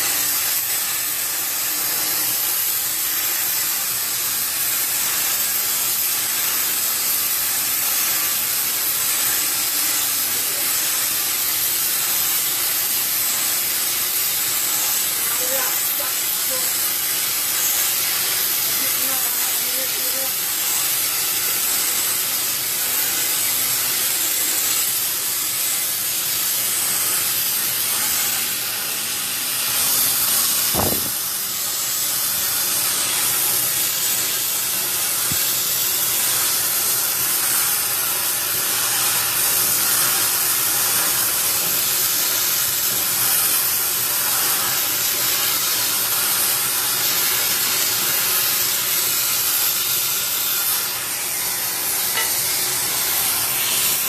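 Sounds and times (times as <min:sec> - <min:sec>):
loud hiss: 0:00.0 - 0:54.0
dull thump: 0:30.8 - 0:31.2.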